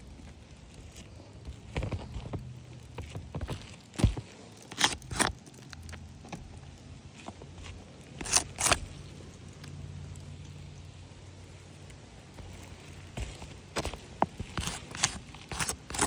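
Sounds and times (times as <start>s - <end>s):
low steady hum: 0.0s - 16.0s
footsteps scuffing on a roof: 0.2s - 5.3s, 12.3s - 16.0s.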